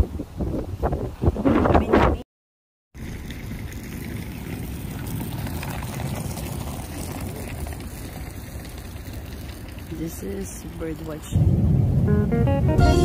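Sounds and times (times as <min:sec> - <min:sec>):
wind rumbling on microphone: 0:00.0 - 0:02.2, 0:03.0 - 0:12.8.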